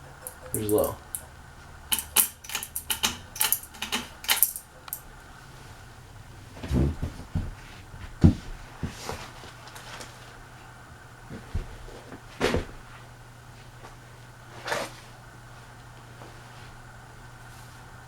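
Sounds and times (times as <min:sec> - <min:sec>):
fan knocking and clunking: 0:00.0 - 0:05.2, 0:05.8 - 0:09.6
ceiling fan motor hum: 0:00.0 - 0:18.0.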